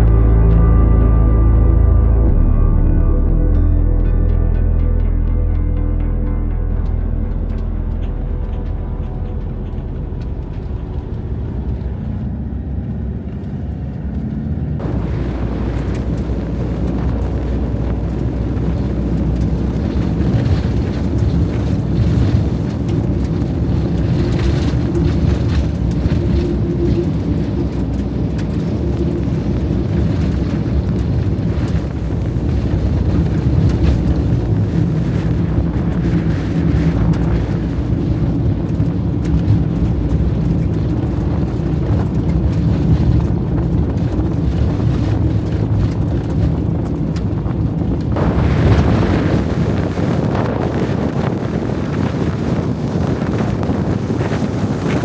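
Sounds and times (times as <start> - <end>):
strong wind noise: 0.0 - 3.9, 6.7 - 55.0
background music: 0.0 - 11.2
vehicle engine rumble: 0.0 - 55.0.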